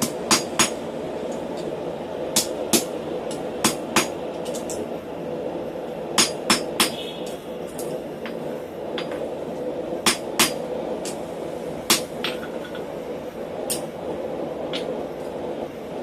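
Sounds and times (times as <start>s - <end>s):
steady hum: 0.0s - 16.0s
hammer striking steel on anvil: 6.2s - 7.0s.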